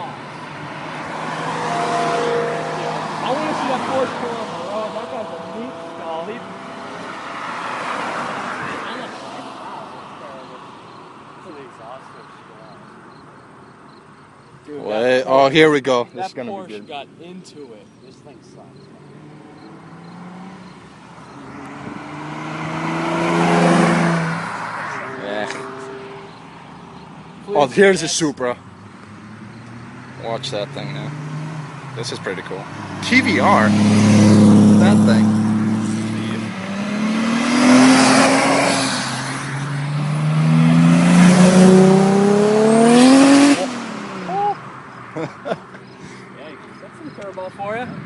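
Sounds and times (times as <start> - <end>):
sports car accelerating past: 0.2 - 11.0, 18.8 - 27.9, 28.7 - 45.2.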